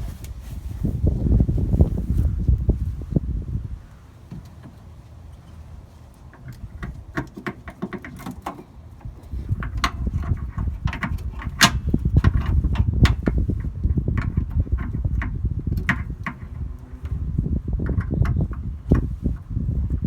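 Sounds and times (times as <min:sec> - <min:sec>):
low handling rumble: 0:00.0 - 0:07.3, 0:08.1 - 0:20.0
hands handling fuel filter clicks: 0:04.3 - 0:17.2.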